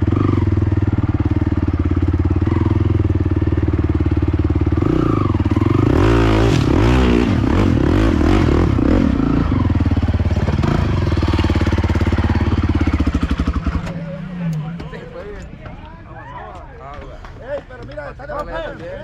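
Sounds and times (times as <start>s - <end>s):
quad bike engine revving: 0.0s - 15.0s.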